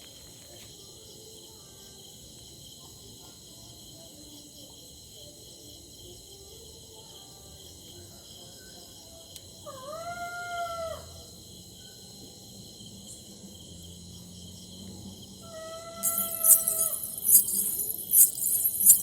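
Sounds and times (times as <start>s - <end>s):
crickets chirping: 0.0s - 19.0s
eerie ghostly howl: 15.4s - 17.0s.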